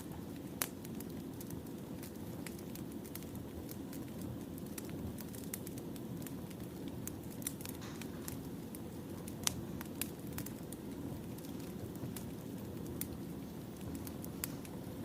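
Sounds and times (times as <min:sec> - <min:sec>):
fire low rumble: 0:00.0 - 0:15.0.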